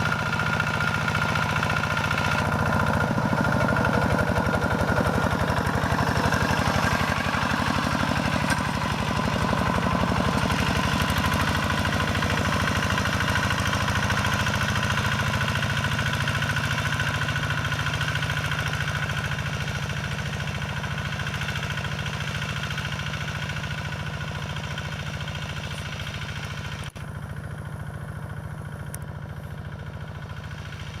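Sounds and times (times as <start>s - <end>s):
diesel engine thudding: 0.0s - 21.6s.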